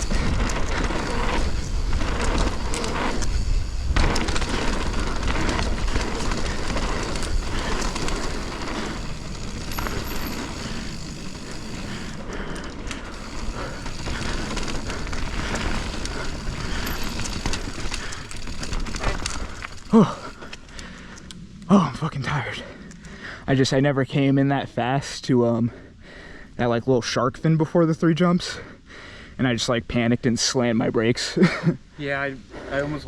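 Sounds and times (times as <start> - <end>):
rider grunting: 0.0 - 20.4
bike rattling and knocking: 0.0 - 20.5
rush of tyres and air: 0.0 - 21.6.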